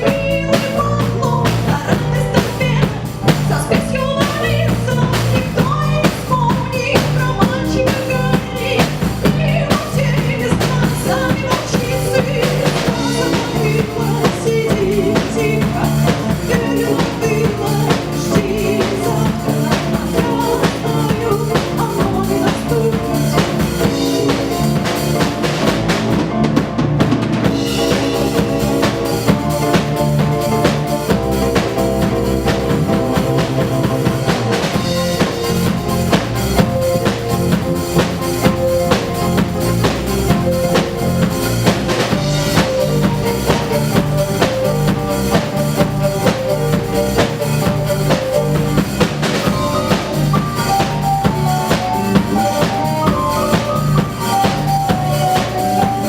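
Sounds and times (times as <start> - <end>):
strong low bass: 0.0 - 55.4
drum kit beat: 0.0 - 56.0
live band playing: 0.0 - 56.0.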